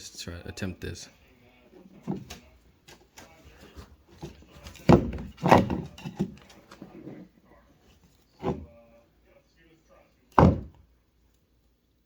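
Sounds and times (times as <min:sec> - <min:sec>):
objects knocking and rattling: 0:01.8 - 0:03.2, 0:03.8 - 0:07.3
heavy thumps: 0:04.1 - 0:06.4, 0:10.4 - 0:10.9.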